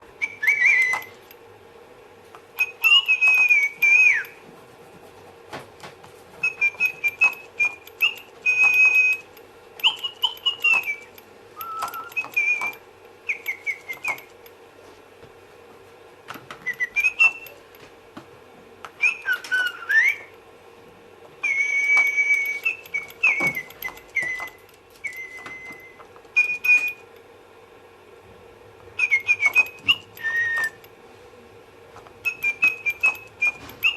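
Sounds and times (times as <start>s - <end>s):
toy bird chirping and whistling: 0.2s - 1.4s, 2.5s - 4.4s, 6.3s - 14.4s, 16.6s - 17.7s, 18.9s - 20.4s, 21.3s - 27.1s, 28.9s - 30.9s, 32.2s - 33.9s.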